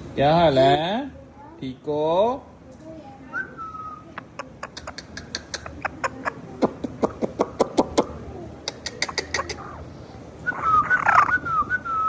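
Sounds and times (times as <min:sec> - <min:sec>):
parrot clicking: 0:04.1 - 0:09.8
parrot warbling whistle: 0:10.5 - 0:12.0.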